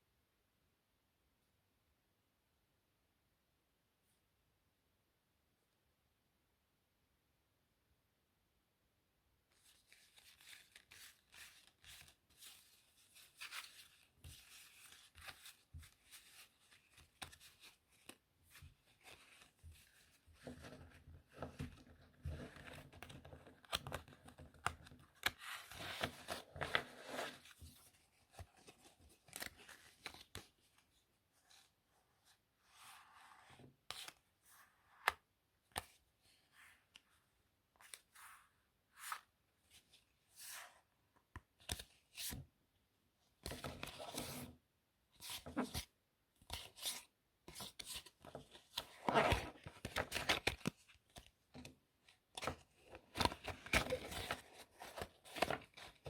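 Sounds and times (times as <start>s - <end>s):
playing cards rustling: 9.6s - 30.6s, 46.5s - 51.3s, 52.3s - 56.0s.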